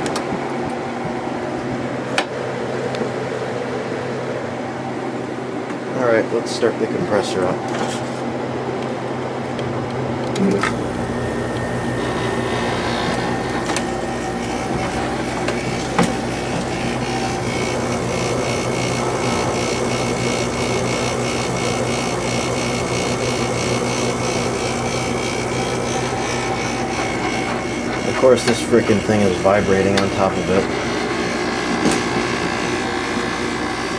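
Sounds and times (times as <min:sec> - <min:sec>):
air conditioner humming: 0:00.0 - 0:33.9
air conditioner rattling: 0:05.2 - 0:33.9
high steady tone: 0:10.7 - 0:31.7.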